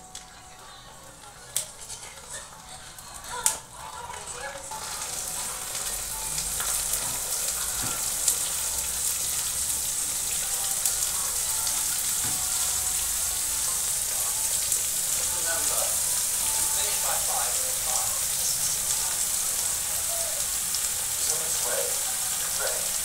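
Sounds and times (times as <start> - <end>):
vegetables sizzling in hot oil: 1.0 - 23.0
sharp ticks of frying oil: 4.7 - 23.0.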